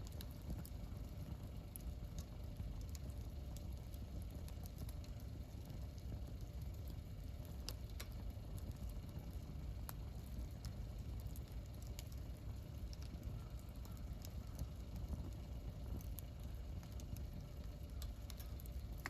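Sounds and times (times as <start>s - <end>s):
campfire flame rumble: 0.0s - 19.0s
fire crackling and popping: 0.0s - 19.0s.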